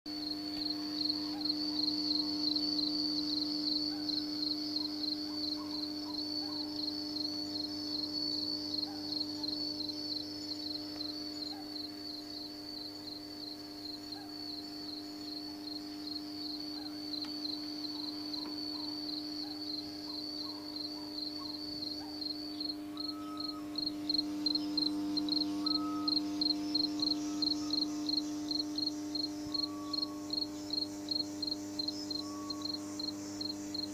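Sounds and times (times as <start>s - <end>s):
cricket chirping: 0.1s - 33.9s
low electrical hum: 0.1s - 33.9s.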